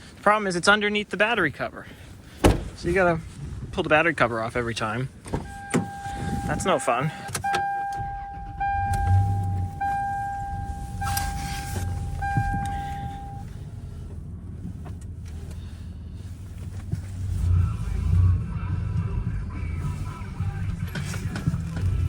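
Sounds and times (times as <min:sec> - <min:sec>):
vehicle warning chime: 0:05.4 - 0:13.6
low rumble: 0:07.9 - 0:22.0.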